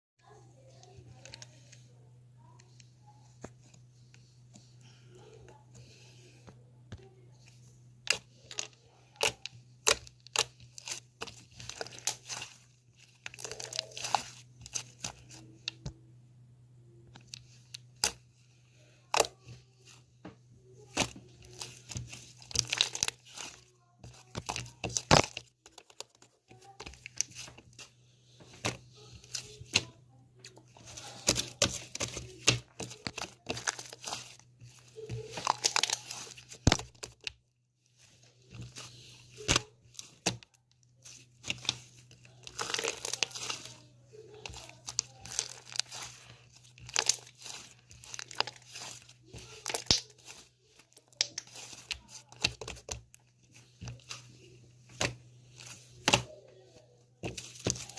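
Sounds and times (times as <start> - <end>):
faint low hum: 0.2 - 57.9
paper or plastic crinkling: 8.3 - 15.5, 20.8 - 27.9, 30.5 - 37.3, 37.9 - 56.3, 57.2 - 57.9.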